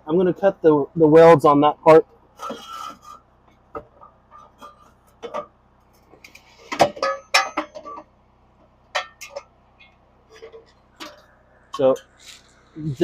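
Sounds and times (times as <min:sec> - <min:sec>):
metal tools clinking and knocking: 0:06.4 - 0:08.1, 0:08.9 - 0:12.2.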